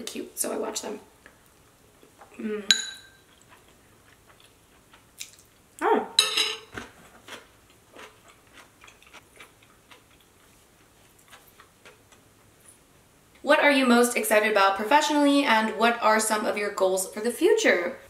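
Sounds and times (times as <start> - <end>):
metal spoon clinking on bowl: 2.7 - 3.2, 6.2 - 6.7
close chewing with wet clicks: 3.3 - 5.6, 7.2 - 12.3.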